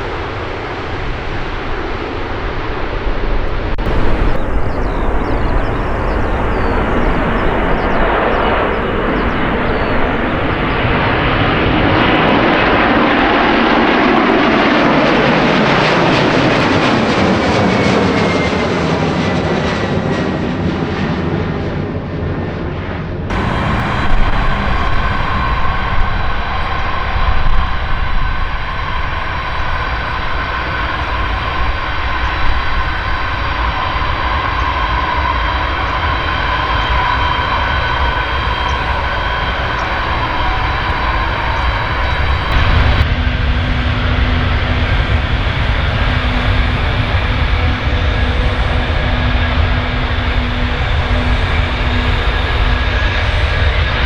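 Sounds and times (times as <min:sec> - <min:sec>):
high steady whine: 0:03.5 - 0:11.9, 0:23.3 - 0:53.5
jet engine steady noise: 0:03.5 - 0:14.8, 0:23.3 - 0:54.0
jet aircraft passing close by: 0:03.5 - 0:54.0.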